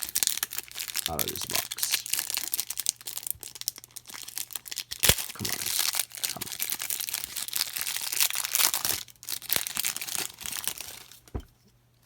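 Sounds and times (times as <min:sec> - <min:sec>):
wrapper crinkling and tearing: 0:00.0 - 0:11.4.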